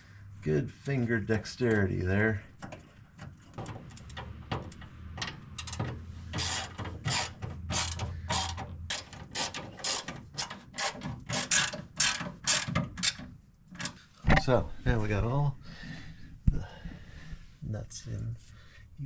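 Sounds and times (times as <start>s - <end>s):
ratchet wrench clicking: 5.5s - 13.2s.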